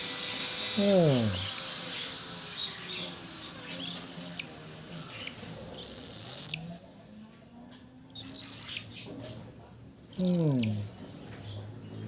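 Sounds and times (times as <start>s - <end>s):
electric power tool winding down: 0.0s - 4.3s.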